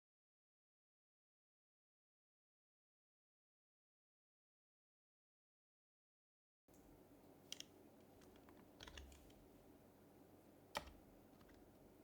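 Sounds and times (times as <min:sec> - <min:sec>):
soft keyboard keystrokes: 0:06.7 - 0:09.5, 0:10.7 - 0:11.8
faint room noise: 0:06.7 - 0:12.0.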